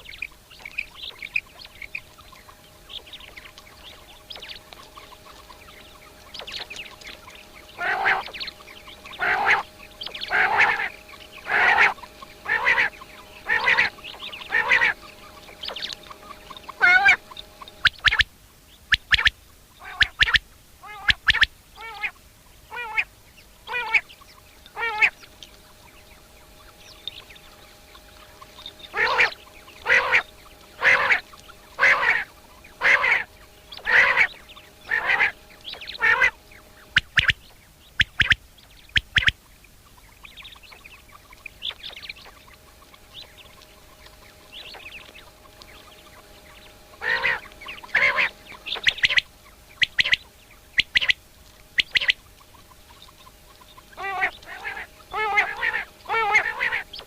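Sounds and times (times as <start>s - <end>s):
quail calling: 0.0s - 57.0s.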